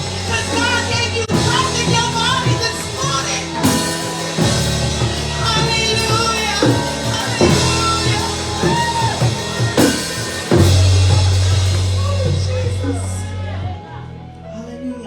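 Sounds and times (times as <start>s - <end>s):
drum kit: 0.0s - 14.1s
worship band playing: 0.0s - 14.4s
deep sustained bass note: 4.4s - 14.7s.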